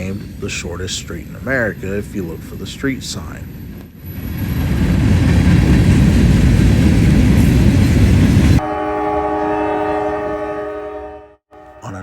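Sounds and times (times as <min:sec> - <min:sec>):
freight train rumbling past: 0:00.0 - 0:12.0
locomotive horn chord: 0:08.6 - 0:12.0.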